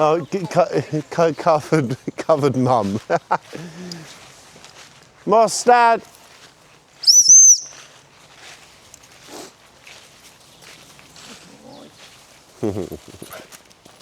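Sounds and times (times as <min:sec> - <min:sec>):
footsteps: 0:00.0 - 0:06.9, 0:07.7 - 0:14.0
high whistle blown: 0:07.0 - 0:07.8.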